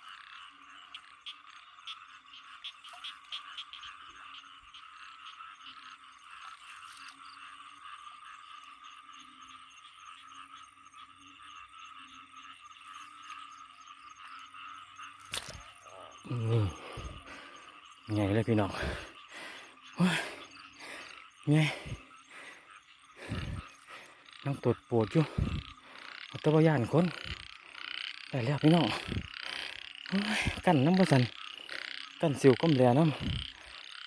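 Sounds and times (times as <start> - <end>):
bullfrogs low calls: 0.0 - 34.0
chorus of frogs and insects: 0.0 - 34.0.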